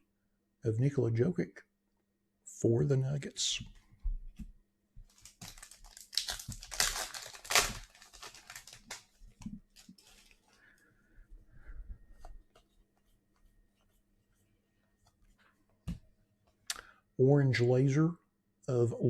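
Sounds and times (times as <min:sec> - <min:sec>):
card pack wrapper tearing: 0:05.1 - 0:09.1.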